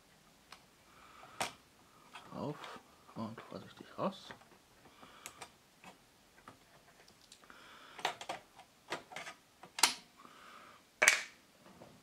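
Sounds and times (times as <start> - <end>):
clicks and knocks of parts handled: 8.0 - 10.1.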